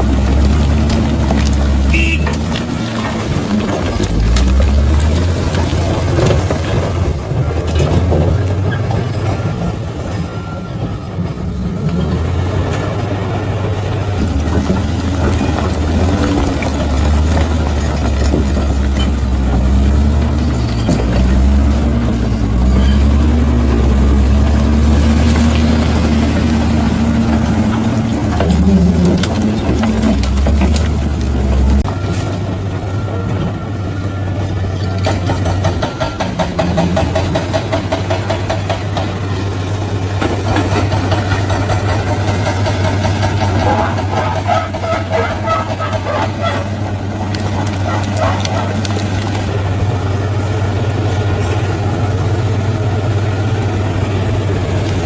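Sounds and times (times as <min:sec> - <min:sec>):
bulldozer diesel engine droning: 0:00.0 - 0:55.0
machine knocks and clanks: 0:35.0 - 0:39.6, 0:40.2 - 0:49.7.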